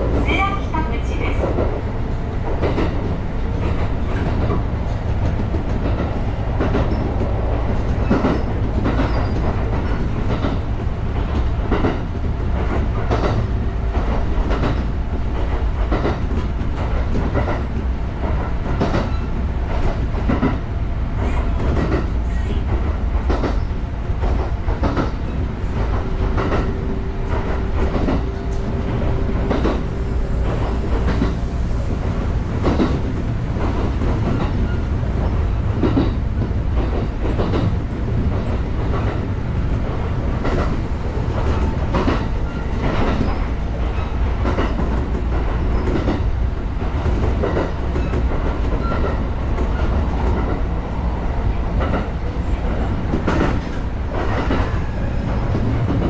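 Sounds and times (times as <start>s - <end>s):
train low rumble: 0.0s - 56.0s
wheels clacking over rail joints: 21.2s - 31.4s.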